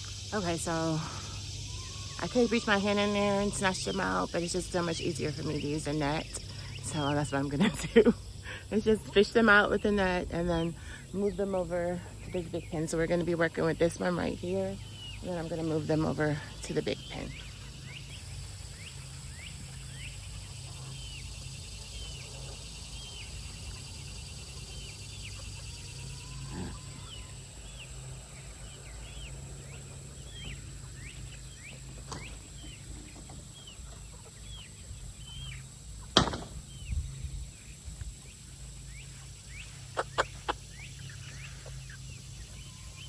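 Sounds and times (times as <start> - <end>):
chicks peeping: 0.1 - 43.0
sharp loud knock: 36.2 - 36.6.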